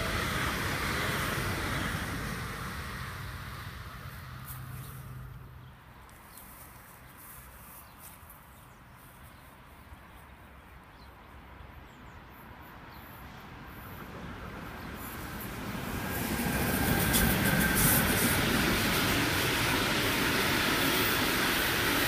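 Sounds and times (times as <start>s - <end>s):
thin locomotive whine: 0.0s - 5.6s, 12.8s - 22.0s
freight train rumble: 0.0s - 6.4s, 12.1s - 22.0s.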